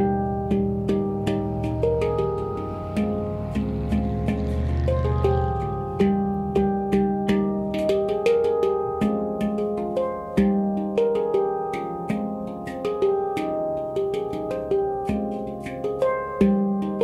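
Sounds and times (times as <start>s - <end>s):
handpan melody: 0.0s - 17.0s.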